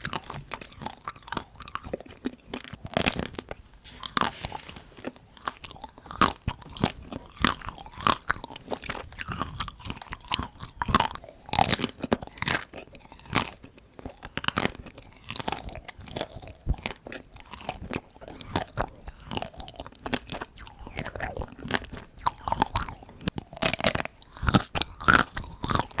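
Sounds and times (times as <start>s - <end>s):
chewing ice cream: 0.0s - 26.0s
chocolate crunching: 0.0s - 26.0s.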